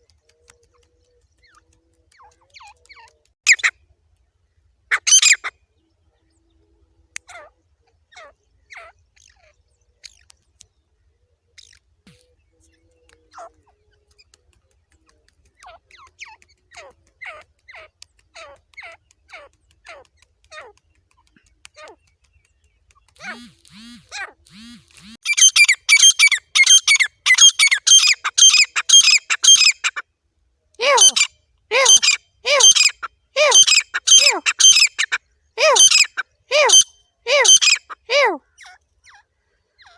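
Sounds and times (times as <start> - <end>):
francolin calling: 23.2 - 30.0, 30.8 - 38.4.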